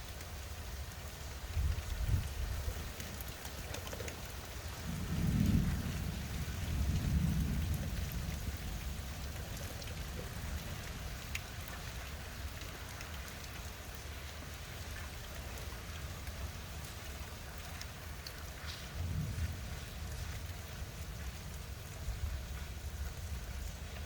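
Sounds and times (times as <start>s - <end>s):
steady rain falling: 0.0s - 24.0s
thunder rumbling: 4.8s - 11.3s, 18.8s - 23.7s.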